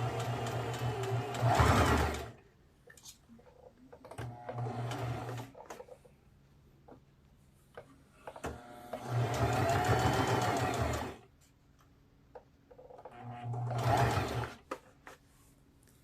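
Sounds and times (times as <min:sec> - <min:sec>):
electric sewing machine stitching: 0:00.0 - 0:02.4, 0:04.2 - 0:05.6, 0:08.4 - 0:11.2, 0:13.1 - 0:14.6
faint clicks of fabric handling: 0:14.6 - 0:16.0.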